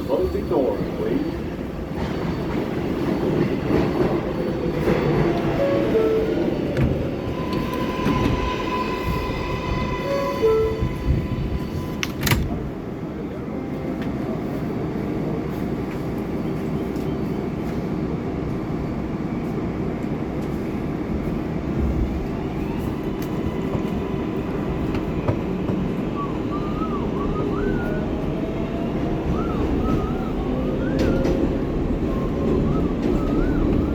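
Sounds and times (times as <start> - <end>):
wheels rumbling on track: 20.2 - 33.9.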